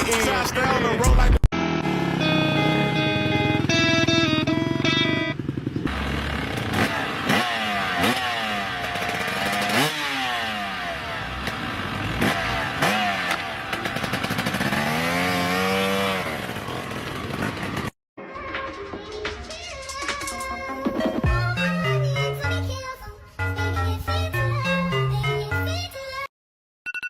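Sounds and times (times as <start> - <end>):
motocross bike engine revving: 0.0 - 17.9.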